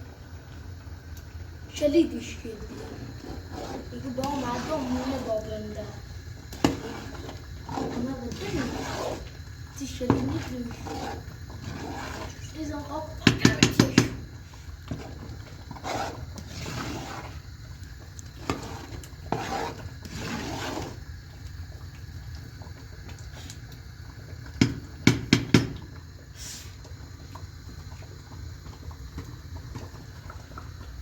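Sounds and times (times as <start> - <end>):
hiss: 26.3 - 26.9.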